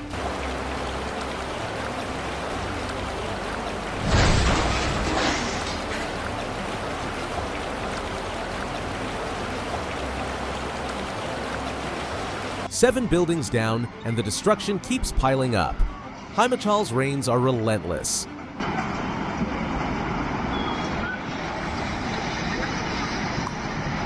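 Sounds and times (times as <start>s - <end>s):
heavy rain: 0.0s - 12.8s, 18.6s - 24.0s
rushing floodwater: 0.0s - 24.0s.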